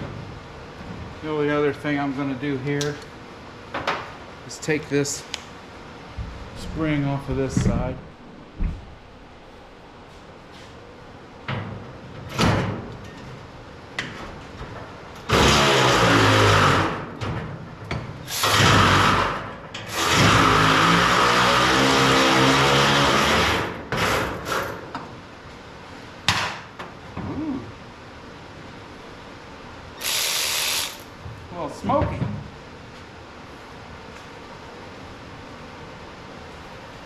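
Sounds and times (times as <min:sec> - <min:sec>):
power tool running: 0:15.3 - 0:17.0, 0:18.3 - 0:24.6, 0:30.0 - 0:31.1.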